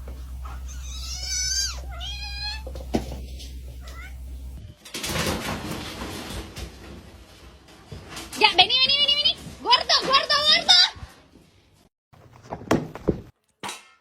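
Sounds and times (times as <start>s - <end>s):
cat meowing: 0.7s - 2.8s, 3.8s - 4.3s.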